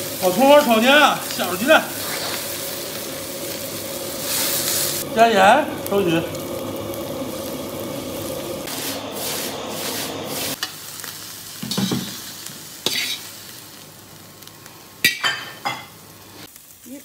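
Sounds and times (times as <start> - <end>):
egg sizzling in a wok: 0.0 - 17.0
metal spatula scraping wok: 2.0 - 2.6, 12.8 - 13.3.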